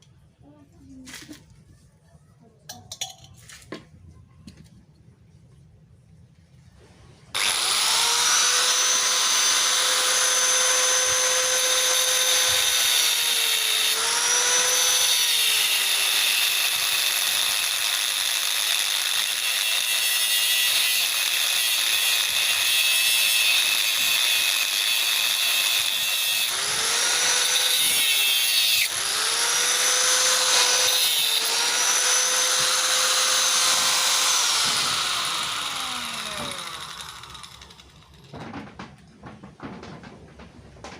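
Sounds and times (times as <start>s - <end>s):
power tool high whine: 7.4s - 38.1s.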